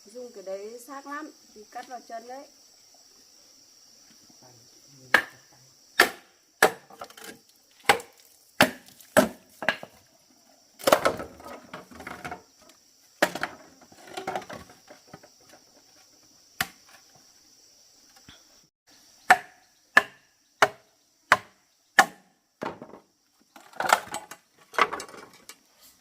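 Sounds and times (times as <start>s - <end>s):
knife chopping bamboo: 5.1s - 5.4s, 6.0s - 9.9s, 16.6s - 16.8s, 19.3s - 22.3s.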